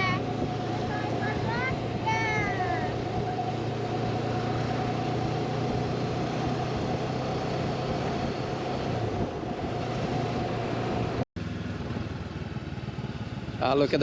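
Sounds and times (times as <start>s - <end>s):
steady whine: 0.0s - 11.2s
wind rush: 0.0s - 11.2s
motorcycle engine cruising: 0.0s - 14.0s.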